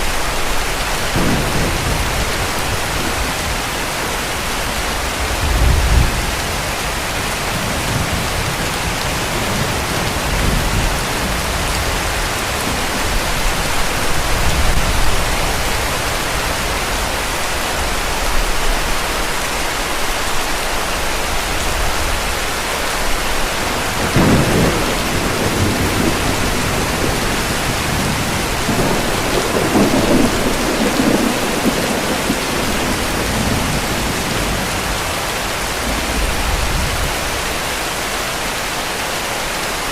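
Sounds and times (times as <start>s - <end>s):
heavy rain: 0.0s - 39.9s
thunder rumbling: 0.4s - 17.2s, 23.3s - 37.6s.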